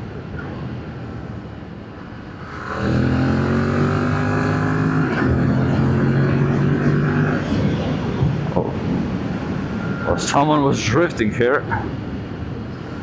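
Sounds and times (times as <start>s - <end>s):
motorcycle engine revving: 2.3s - 8.2s.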